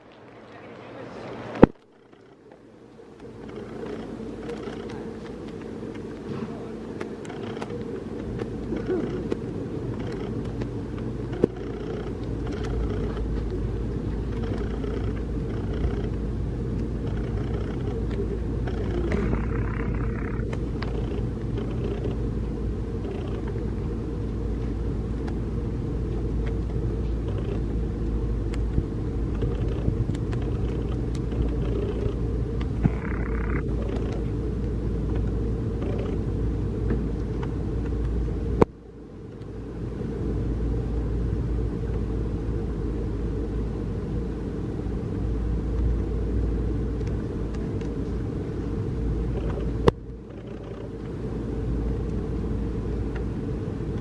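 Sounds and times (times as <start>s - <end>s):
low outdoor rumble: 0.0s - 54.0s.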